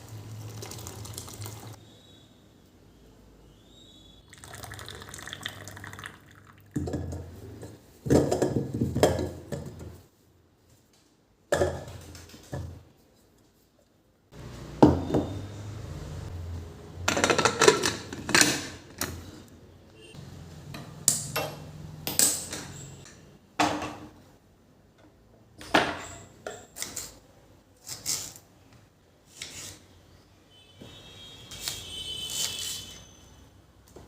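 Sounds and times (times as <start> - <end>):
dishes and utensils clattering: 17.1 - 19.2.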